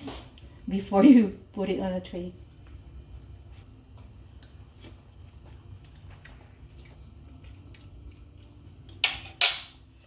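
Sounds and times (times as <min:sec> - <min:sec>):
low steady hum: 0:00.0 - 0:10.0
sauce simmering in a pan: 0:02.6 - 0:10.0.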